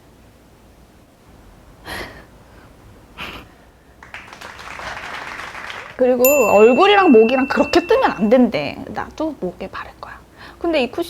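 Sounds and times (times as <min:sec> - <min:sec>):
woman breathing through nose: 0:10.3 - 0:10.6.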